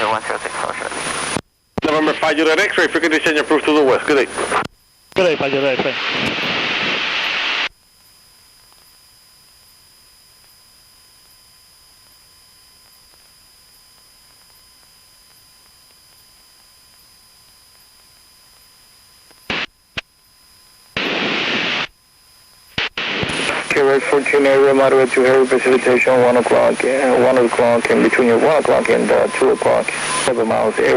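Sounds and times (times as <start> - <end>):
burst of radio static: 0.0 - 7.7, 19.4 - 20.1, 20.9 - 22.0, 22.7 - 30.9
radio hiss with thin tone: 0.0 - 30.9
short radio clicks: 22.7 - 23.8.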